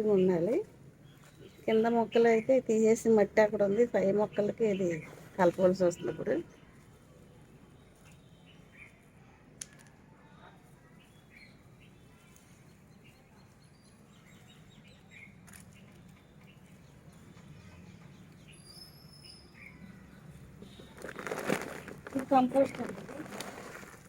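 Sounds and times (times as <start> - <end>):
faint bird chirps: 10.3 - 21.0.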